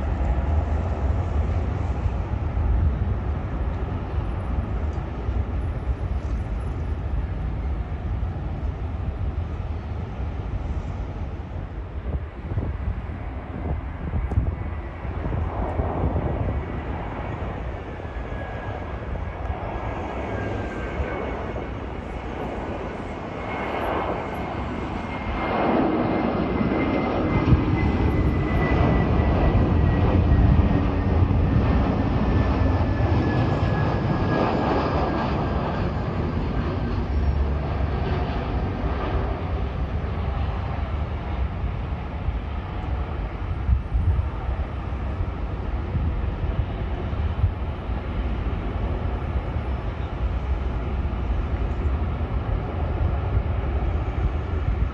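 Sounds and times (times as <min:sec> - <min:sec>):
jet engines rumbling: 0:00.0 - 0:54.9.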